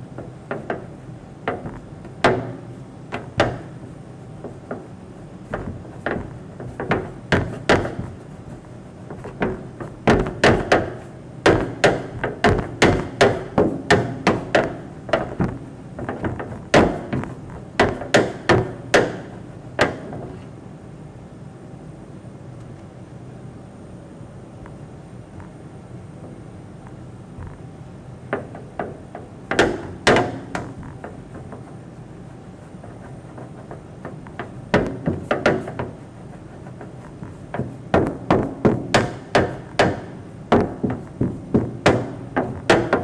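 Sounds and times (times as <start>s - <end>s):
steady low hum: 0.0s - 43.0s
sharp knocks: 0.2s - 3.8s, 4.4s - 20.4s, 28.3s - 31.8s, 32.8s - 43.0s.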